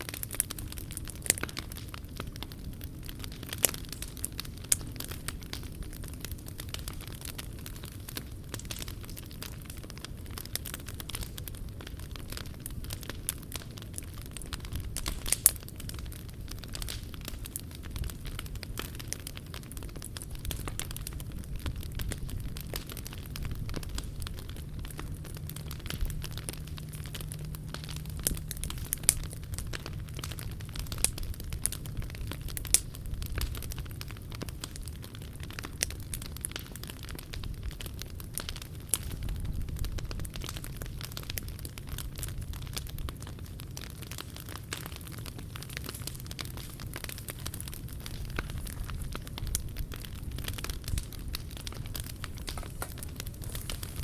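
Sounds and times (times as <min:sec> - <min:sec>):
low rumble of flames: 0:00.0 - 0:54.0
wood fire crackling: 0:00.0 - 0:54.0
low rumble: 0:20.3 - 0:33.6.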